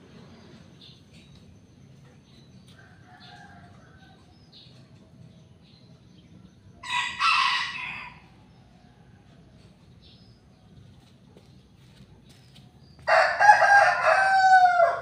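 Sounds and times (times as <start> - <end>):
rooster crowing: 6.8 - 8.4, 13.1 - 15.0.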